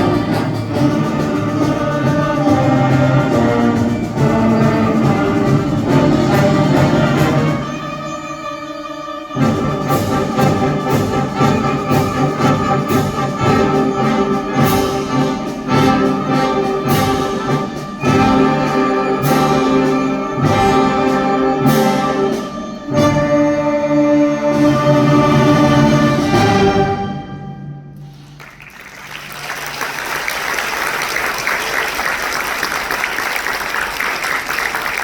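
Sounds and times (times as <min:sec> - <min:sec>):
concert band brass chords: 0:00.0 - 0:07.9, 0:09.4 - 0:28.2.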